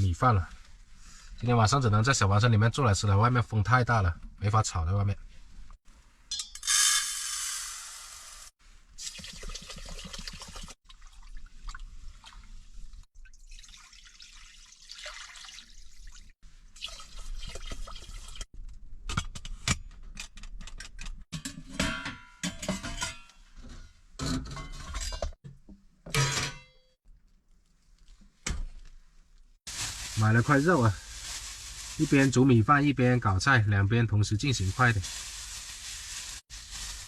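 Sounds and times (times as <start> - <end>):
water sloshing in a cooking pot: 9.0 - 18.5
pots and utensils clattering: 21.4 - 25.4, 26.1 - 26.8.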